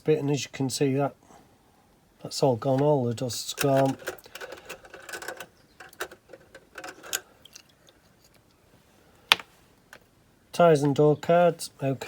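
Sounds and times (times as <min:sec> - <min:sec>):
small parts being handled: 0:03.5 - 0:08.6, 0:09.3 - 0:10.1.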